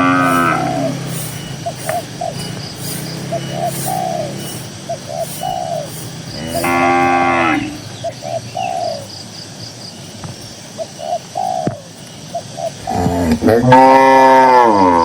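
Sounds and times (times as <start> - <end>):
cow mooing: 0.0 - 1.1, 6.4 - 7.9, 12.9 - 15.0
dove cooing: 0.0 - 9.2, 10.7 - 15.0
small bird chirping: 0.0 - 13.6.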